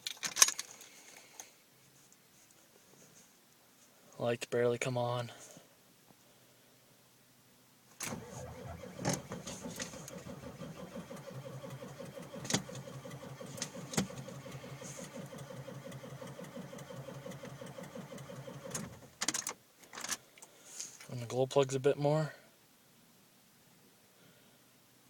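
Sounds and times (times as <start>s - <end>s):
diesel engine cranking: 8.0s - 19.4s.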